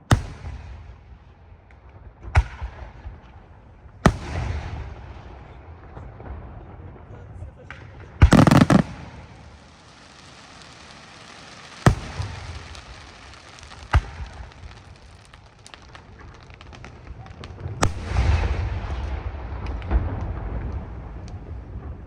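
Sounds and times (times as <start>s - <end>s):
fireworks crackling: 3.2s - 6.2s, 7.8s - 22.0s
firework shell bursts: 8.3s - 15.0s.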